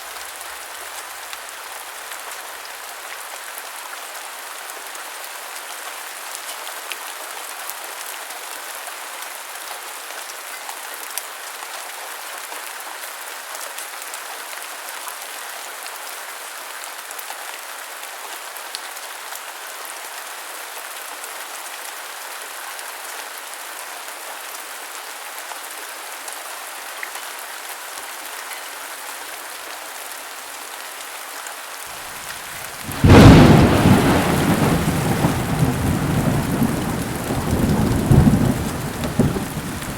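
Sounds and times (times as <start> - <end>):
heavy rain hissing: 32.0 - 39.9
thunderclap rumbling: 32.8 - 39.9.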